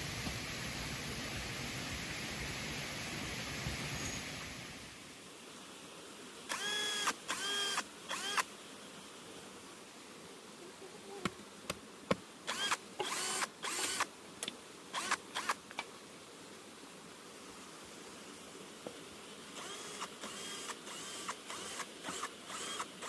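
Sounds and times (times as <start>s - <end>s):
power drill whining: 6.5s - 8.4s, 12.5s - 14.0s, 15.0s - 15.6s, 19.6s - 23.0s.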